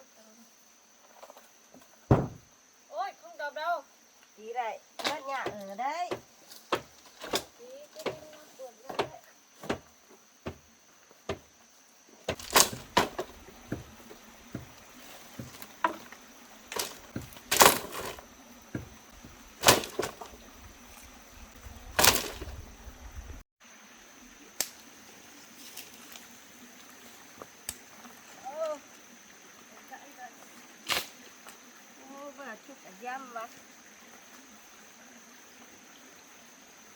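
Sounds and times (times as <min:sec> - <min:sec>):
wood knocks and bangs: 0:02.1 - 0:02.5, 0:05.0 - 0:10.7, 0:11.3 - 0:11.5, 0:12.3 - 0:20.7, 0:21.6 - 0:23.4.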